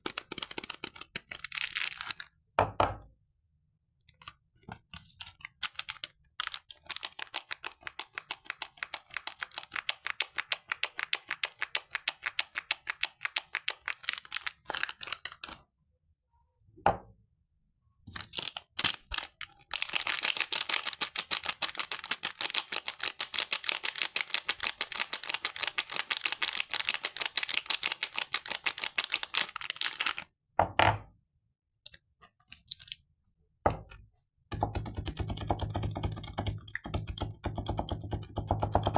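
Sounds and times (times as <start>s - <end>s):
soap crackling: 18.2s - 30.2s.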